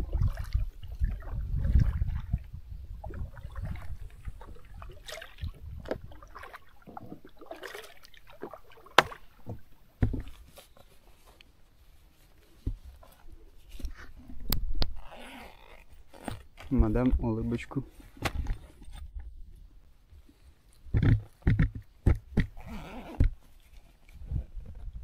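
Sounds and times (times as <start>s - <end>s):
water splashing at paddle strokes: 0.0s - 11.2s
sharp knocks: 20.9s - 22.6s.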